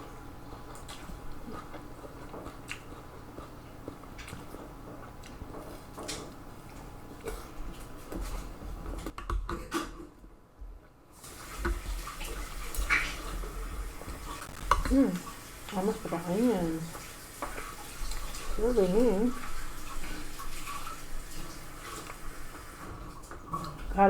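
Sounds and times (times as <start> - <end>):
liquid sloshing: 11.3 - 24.0.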